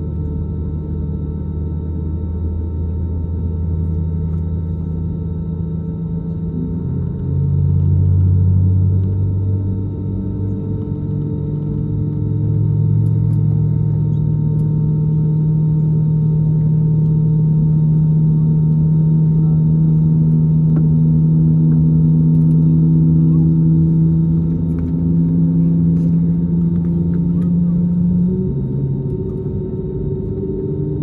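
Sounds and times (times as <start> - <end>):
jet engines hum in cabin: 0.0 - 31.0.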